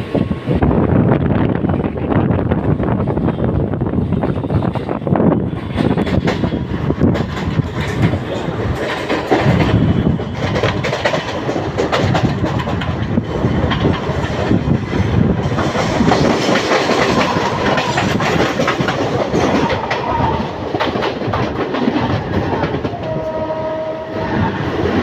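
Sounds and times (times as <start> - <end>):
train wheels clattering over rail joints: 4.1 - 23.3.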